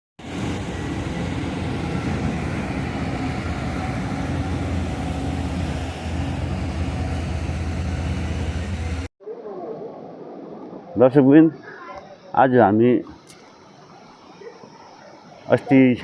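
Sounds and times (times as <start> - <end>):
vehicle engine and road noise: 0.2 - 9.1.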